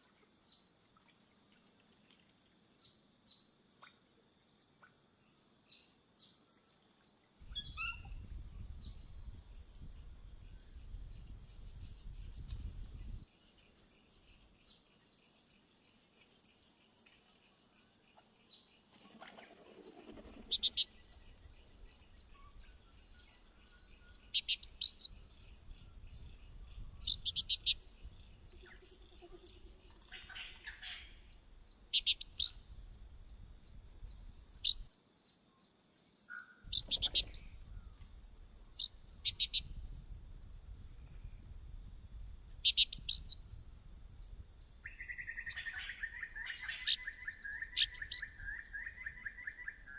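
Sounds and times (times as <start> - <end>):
loud rapid bird trills: 19.3 - 25.8, 26.5 - 34.9, 36.3 - 49.9
high bird chirps: 25.8 - 32.7, 36.7 - 38.1, 38.7 - 39.8, 42.5 - 43.6, 44.8 - 49.9.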